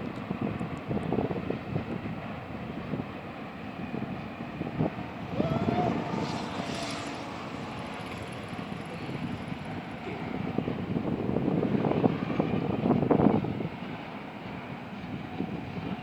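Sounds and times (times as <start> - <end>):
freight train rumbling: 0.0 - 16.0
wind on microphone: 0.0 - 16.0
short rising whine: 4.5 - 10.1.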